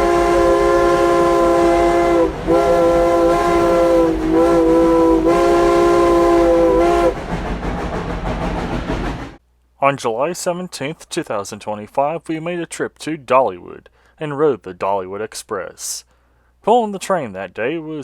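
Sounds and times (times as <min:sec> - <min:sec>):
steam whistle blasts: 0:00.0 - 0:07.2
train running: 0:00.0 - 0:09.4.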